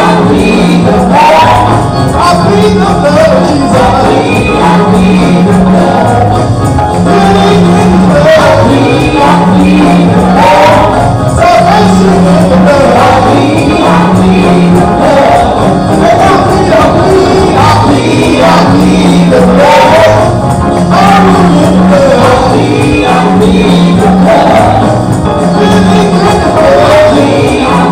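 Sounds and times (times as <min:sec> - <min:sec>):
band with bass line: 0:00.0 - 0:27.9
tambourine: 0:00.0 - 0:27.9
voices singing gospel: 0:00.0 - 0:27.9.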